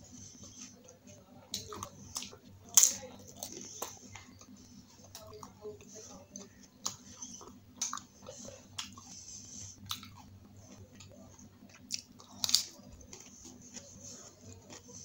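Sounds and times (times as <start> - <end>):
crunching and wet chewing: 0.2 - 15.0.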